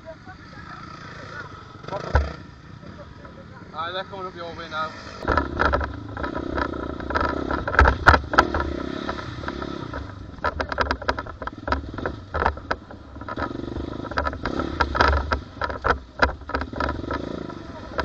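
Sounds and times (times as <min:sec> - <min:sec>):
dirt bike engine running: 0:00.0 - 0:18.0
sharp clattering knocks: 0:01.8 - 0:02.5, 0:05.2 - 0:18.0.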